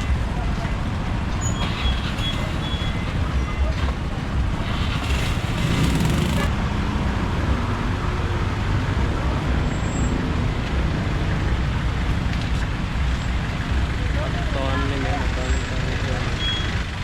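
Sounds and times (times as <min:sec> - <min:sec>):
traffic engines and road noise: 0:00.0 - 0:17.0.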